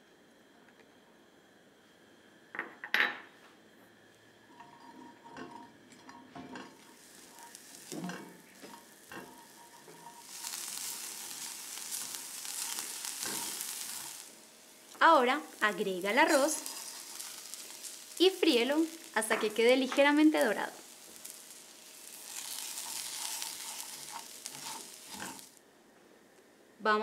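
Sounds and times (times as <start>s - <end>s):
onion and garlic sizzling in pan: 4.5s - 25.6s
utensil clinking and scraping pan: 22.3s - 25.5s.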